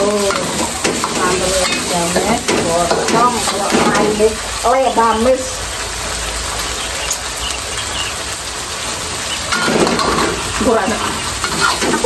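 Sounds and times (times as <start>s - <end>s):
woman speaking: 0.0s - 5.6s, 10.6s - 11.2s
food sizzling in hot oil: 0.0s - 12.0s.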